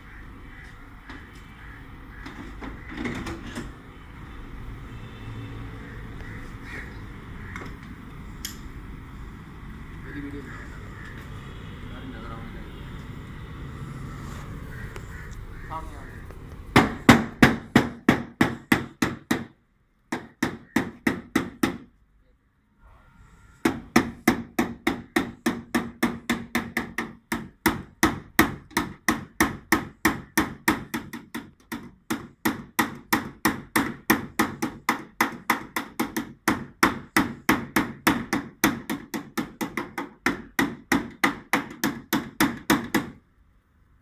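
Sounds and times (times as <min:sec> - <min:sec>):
hammer beating sheet metal: 0:16.8 - 0:21.9, 0:23.6 - 0:43.2.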